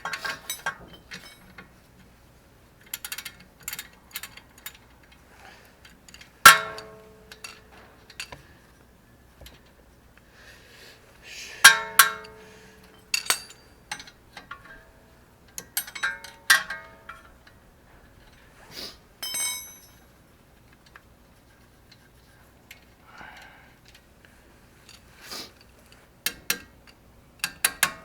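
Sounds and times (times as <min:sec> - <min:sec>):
metal tools clinking: 0:00.0 - 0:01.7, 0:02.9 - 0:08.8, 0:11.6 - 0:18.4, 0:19.2 - 0:20.1.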